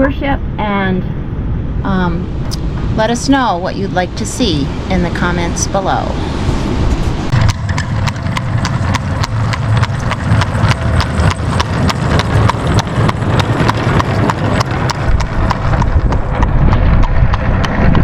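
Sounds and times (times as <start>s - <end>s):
low rumble: 0.0s - 18.0s
horse hooves clip-clopping: 7.3s - 18.0s.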